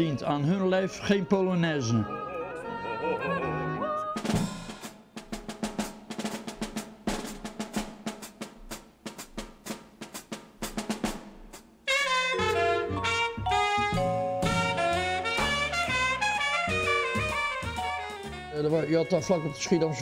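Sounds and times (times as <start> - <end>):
jazz band with saxophone and brass: 2.1 - 4.9, 11.8 - 20.0
jazz drum solo: 4.2 - 20.0.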